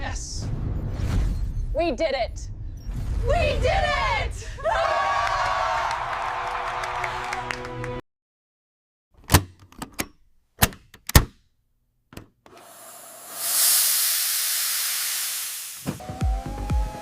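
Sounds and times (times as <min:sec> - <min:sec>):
loud hiss: 0:12.6 - 0:16.0.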